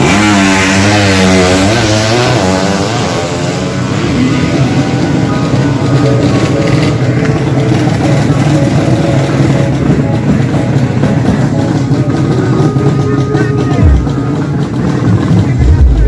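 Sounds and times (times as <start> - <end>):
motorcycle engine running loudly: 0.0 - 16.0.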